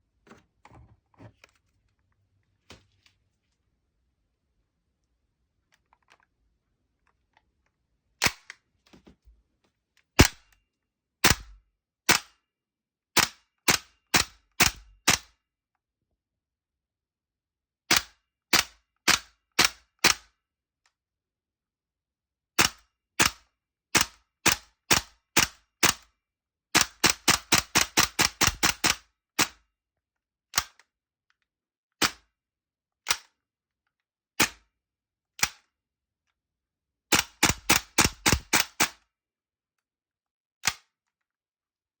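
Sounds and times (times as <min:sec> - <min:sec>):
airsoft pistol shots: 0:10.2 - 0:10.5, 0:37.1 - 0:38.9.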